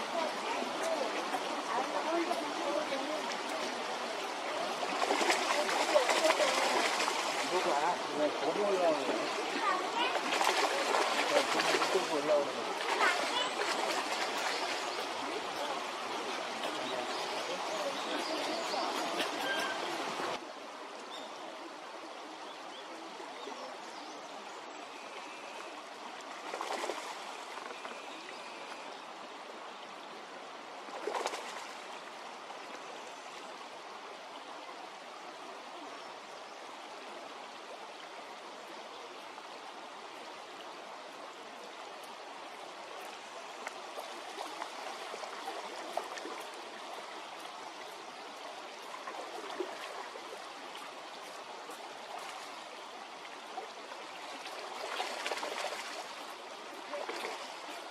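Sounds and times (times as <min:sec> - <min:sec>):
water splashing: 0:00.0 - 0:20.5, 0:25.3 - 0:28.9, 0:30.6 - 0:33.3, 0:41.6 - 0:57.9
stream water flowing: 0:00.0 - 0:57.9.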